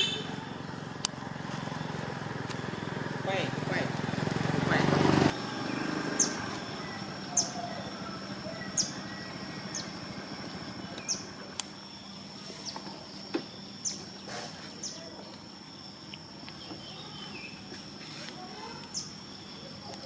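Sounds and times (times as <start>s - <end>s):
high insect drone: 0.0s - 20.0s
sharp chirping call: 5.4s - 11.4s.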